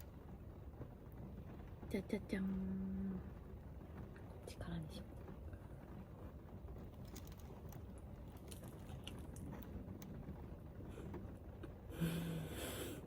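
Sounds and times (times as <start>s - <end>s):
low steady hum: 0.0s - 13.0s
chewing food: 6.9s - 10.1s
small clicks: 6.9s - 10.1s.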